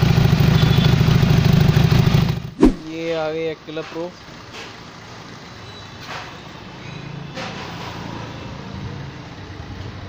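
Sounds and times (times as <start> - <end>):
motorcycle engine idling: 0.0 - 2.4
brief sharp noises: 2.6 - 3.0.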